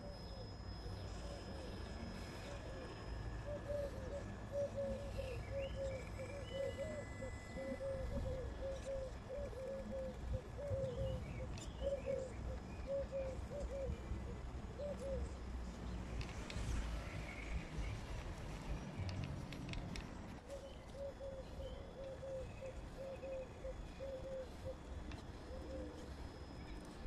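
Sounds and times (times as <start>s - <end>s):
small birds chirping: 0.0s - 14.0s
bird hooting: 0.0s - 15.5s, 20.5s - 26.4s.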